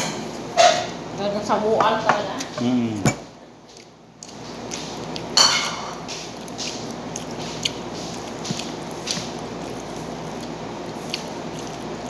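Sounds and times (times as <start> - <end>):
chewing and wet mouth noises: 3.6 - 12.0.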